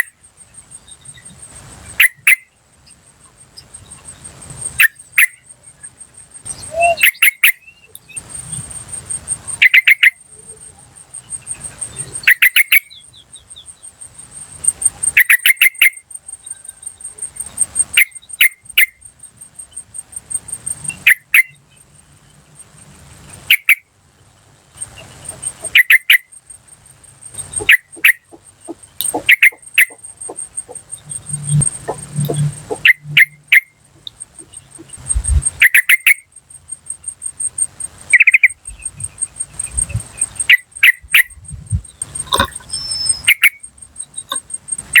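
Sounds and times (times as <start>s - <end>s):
bird chattering calls: 1.9s - 2.6s, 3.6s - 5.5s, 6.4s - 19.0s, 23.4s - 23.8s, 24.8s - 26.4s, 27.2s - 45.0s.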